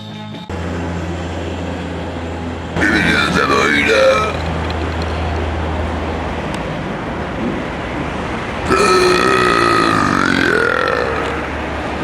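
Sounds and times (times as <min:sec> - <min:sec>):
steady background noise: 0:00.5 - 0:12.0
drawn-out burp-like vocal sound: 0:02.8 - 0:04.5, 0:08.6 - 0:11.6.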